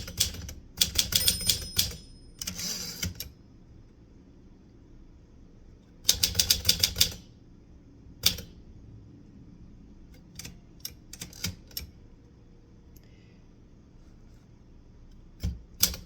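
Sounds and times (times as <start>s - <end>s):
typewriter keystrokes: 0.0s - 3.4s, 6.0s - 7.3s, 8.2s - 8.6s, 10.3s - 11.9s, 15.4s - 16.0s.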